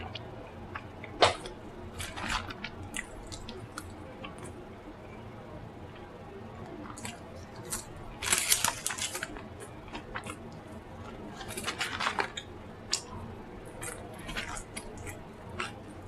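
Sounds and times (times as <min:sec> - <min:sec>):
wet chewing and smacking: 0:06.7 - 0:16.0.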